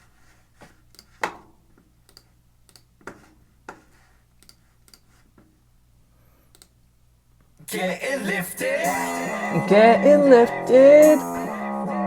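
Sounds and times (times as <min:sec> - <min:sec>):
computer clicks and taps: 0:00.9 - 0:05.5.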